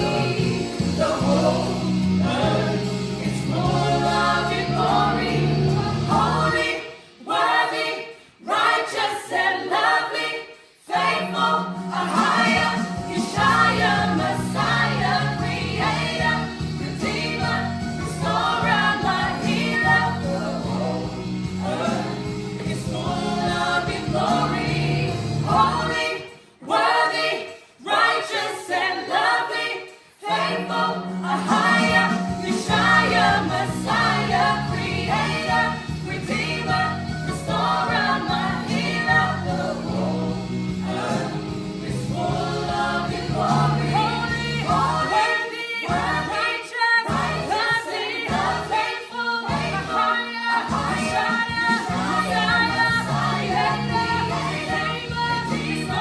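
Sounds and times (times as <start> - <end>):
low musical accompaniment: 0.0 - 7.4, 11.1 - 26.1, 30.3 - 45.3, 49.5 - 56.0
choir singing gospel: 0.0 - 56.0.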